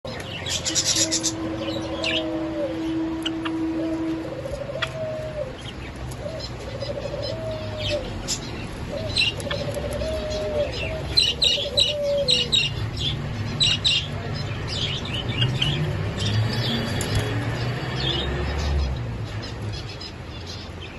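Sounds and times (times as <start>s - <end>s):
sparrow warbled call: 0.1s - 14.1s.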